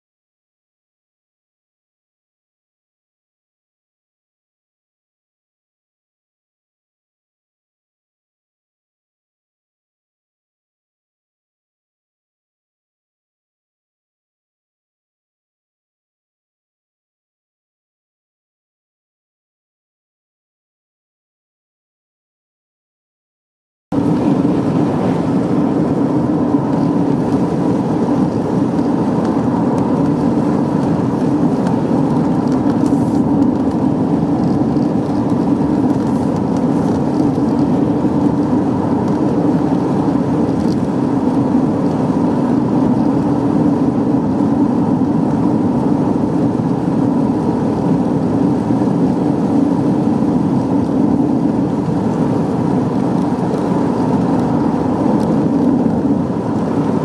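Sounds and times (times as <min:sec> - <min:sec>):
car road and engine noise: 0:23.9 - 0:57.0.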